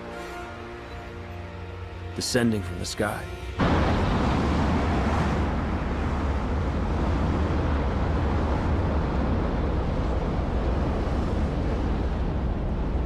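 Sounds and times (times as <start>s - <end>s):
deep continuous rumble: 0.8s - 13.0s
loud rushing wind: 3.6s - 13.0s.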